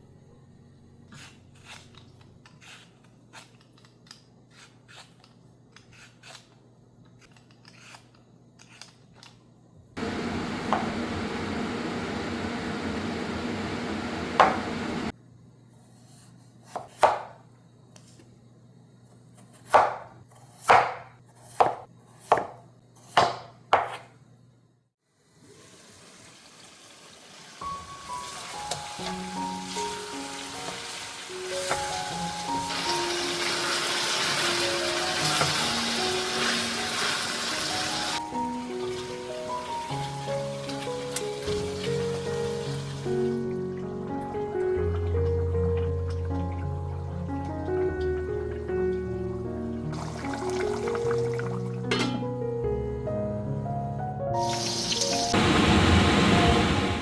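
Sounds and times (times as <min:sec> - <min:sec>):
knife chopping on cutting board: 0:10.5 - 0:11.0, 0:14.3 - 0:14.8, 0:16.6 - 0:17.4, 0:19.4 - 0:24.1.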